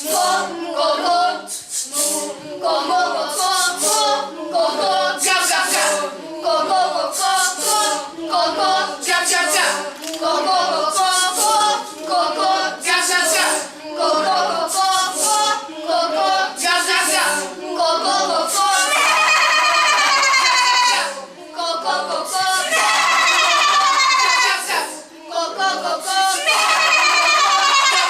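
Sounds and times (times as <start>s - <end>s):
choir singing: 0.0s - 28.0s.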